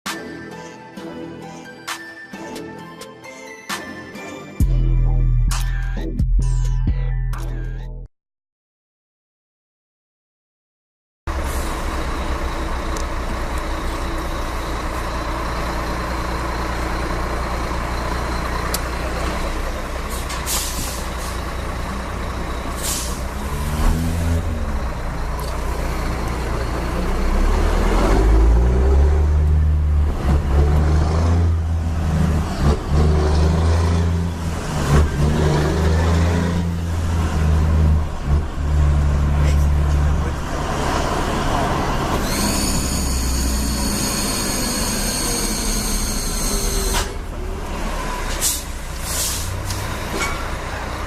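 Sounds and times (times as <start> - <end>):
diesel truck engine: 11.3 - 51.0
air brake hisses: 20.1 - 21.4, 22.7 - 23.4, 48.3 - 50.3.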